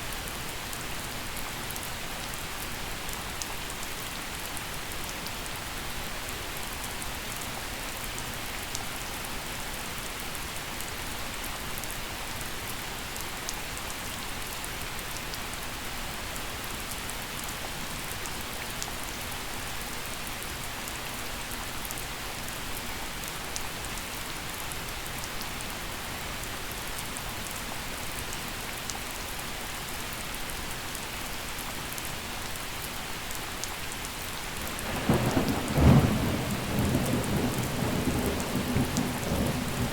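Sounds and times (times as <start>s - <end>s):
gentle rain falling: 0.0s - 39.9s
raindrop ticks: 34.7s - 39.9s.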